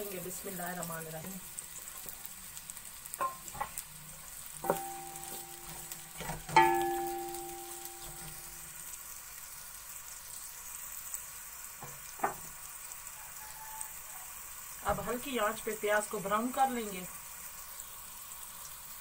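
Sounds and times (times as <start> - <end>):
onions sizzling in hot oil: 0.0 - 19.0
spoon knocking metal pot: 3.2 - 3.7, 4.6 - 8.4.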